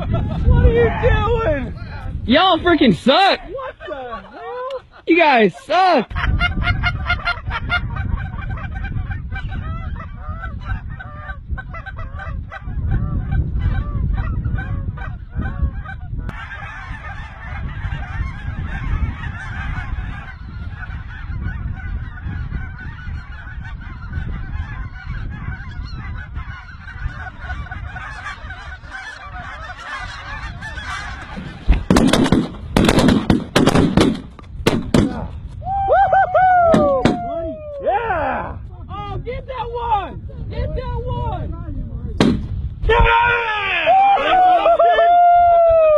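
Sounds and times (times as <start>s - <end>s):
low wind rumble: 0.0s - 45.9s
geese honking: 5.2s - 32.4s
shotgun blasts: 31.8s - 35.2s, 42.2s - 42.6s.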